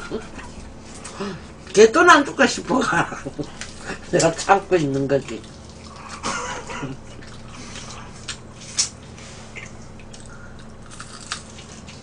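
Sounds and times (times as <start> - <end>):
wet chewing and lip-smacking: 3.2 - 12.0.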